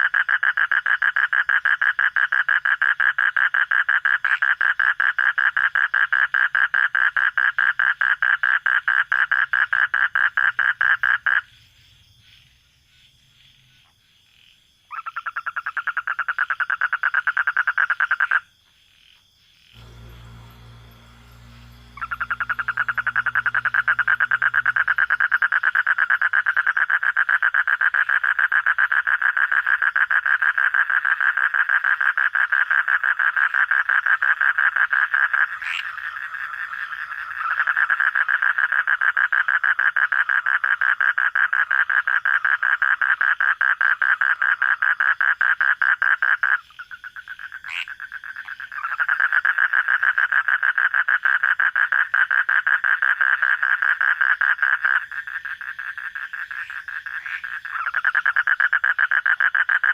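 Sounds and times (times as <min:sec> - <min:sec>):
frog croaking: 0:00.0 - 0:59.9
low hum: 0:19.8 - 0:25.2.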